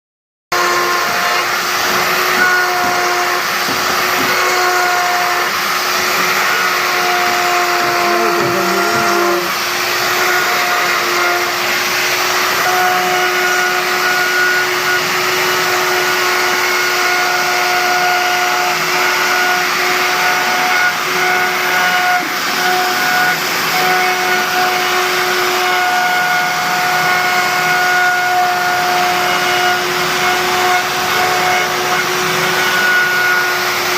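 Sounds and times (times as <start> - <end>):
electric motor whining: 0.6 - 15.7.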